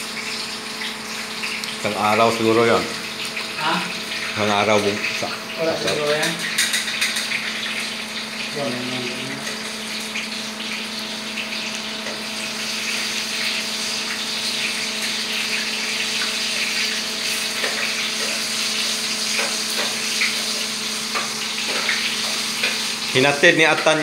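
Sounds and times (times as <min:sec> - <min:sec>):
food sizzling in a pan: 0:00.0 - 0:24.0
metal utensil scraping a pan: 0:05.8 - 0:07.6.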